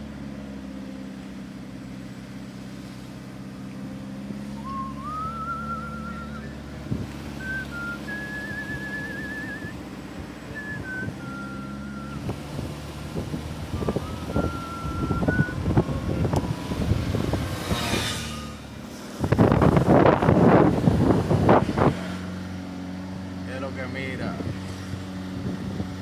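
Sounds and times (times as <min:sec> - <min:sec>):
truck engine running: 0:00.0 - 0:26.0
person whistling a tune: 0:04.6 - 0:06.7, 0:07.4 - 0:09.8, 0:10.5 - 0:12.3, 0:13.7 - 0:15.7.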